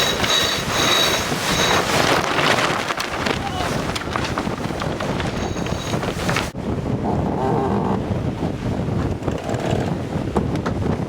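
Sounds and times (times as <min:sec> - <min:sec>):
water rushing past hull: 0:00.0 - 0:06.9
wind buffeting microphone: 0:00.0 - 0:11.0.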